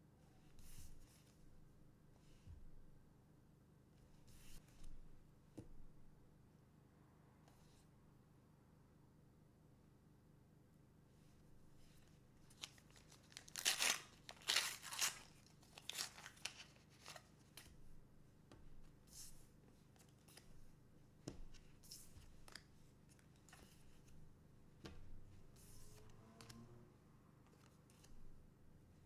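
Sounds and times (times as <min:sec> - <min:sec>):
cards being handled: 0:12.4 - 0:17.7
foil wrapper tearing and crinkling: 0:12.5 - 0:17.3.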